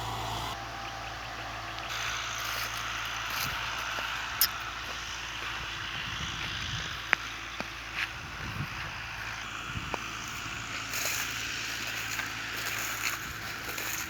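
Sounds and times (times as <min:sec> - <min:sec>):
farm machinery engine running: 0:00.0 - 0:14.0.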